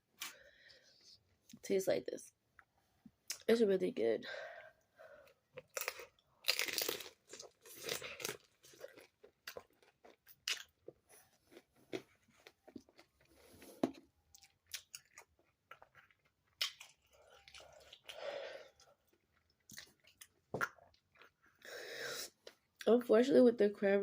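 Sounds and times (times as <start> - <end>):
crunchy chewing: 5.5 - 21.6.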